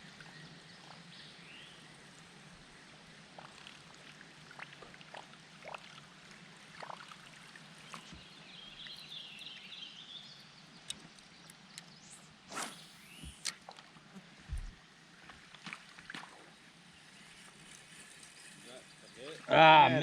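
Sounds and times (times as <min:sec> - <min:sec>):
creek water trickling: 0:00.0 - 0:20.0
water splashes and drips: 0:03.2 - 0:09.0, 0:13.2 - 0:16.7.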